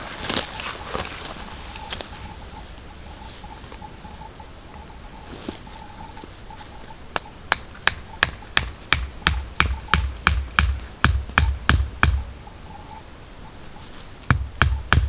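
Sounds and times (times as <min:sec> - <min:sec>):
rapid sharp ringing knocks: 0:07.5 - 0:12.3, 0:14.3 - 0:15.0.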